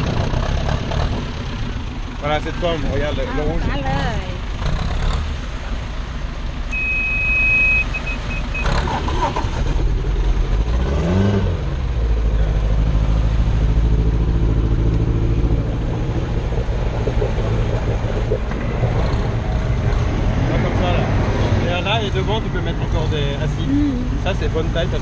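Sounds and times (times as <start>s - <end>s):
boat engine idling: 0.0s - 10.6s, 11.8s - 25.0s
short high beep: 6.7s - 8.8s.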